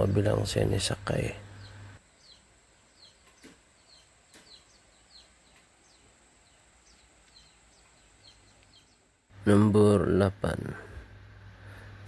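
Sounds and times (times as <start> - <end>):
bird chirping downward: 1.2 - 9.2.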